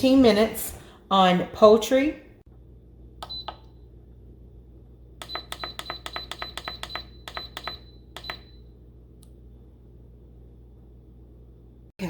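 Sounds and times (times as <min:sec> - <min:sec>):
control panel beeps: 0:03.2 - 0:03.7, 0:05.2 - 0:08.6.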